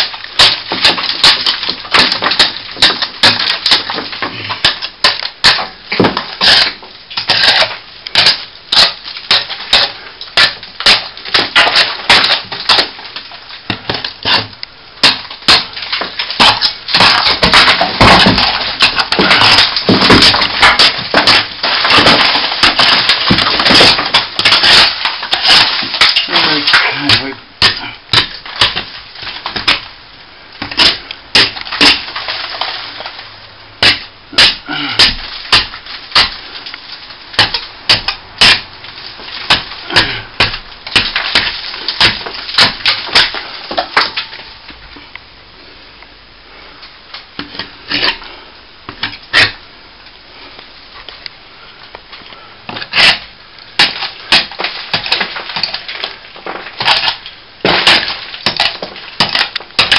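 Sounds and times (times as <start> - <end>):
hand tool scraping plaster: 0.4 - 12.9, 13.9 - 28.9.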